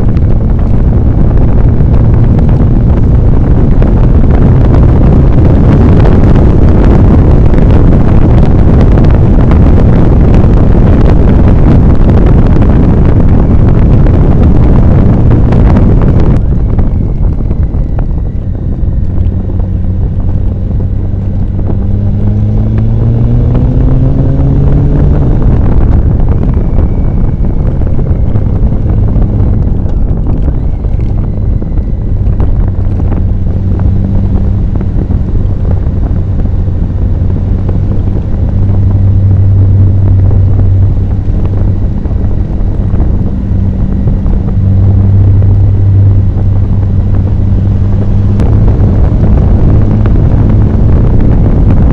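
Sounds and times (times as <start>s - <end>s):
motorcycle engine accelerating: 0.0s - 51.9s
wind buffeting microphone: 0.0s - 51.9s.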